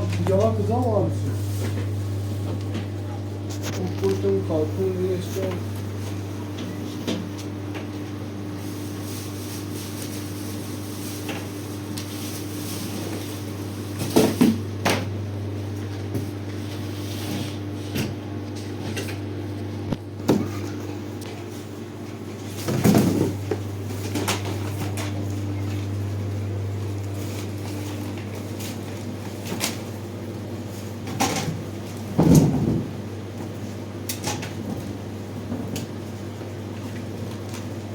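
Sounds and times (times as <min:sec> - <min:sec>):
low electrical hum: 0:00.0 - 0:37.9.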